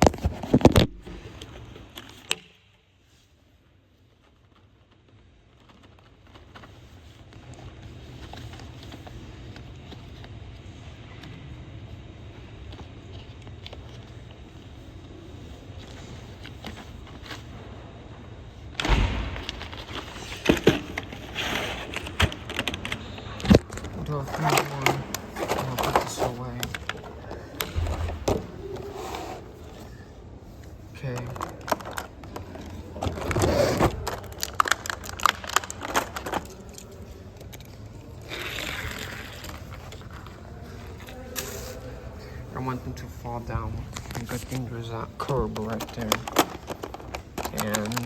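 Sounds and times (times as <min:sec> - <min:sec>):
sudden thump: 0:18.8 - 0:20.8
toy cars rolling on plastic track: 0:44.1 - 0:48.0.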